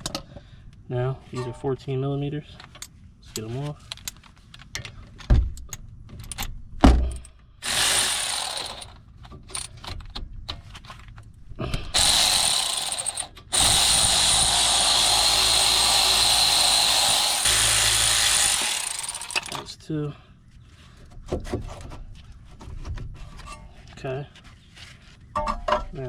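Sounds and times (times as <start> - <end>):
power tool whirring: 7.6 - 9.0, 11.9 - 19.7.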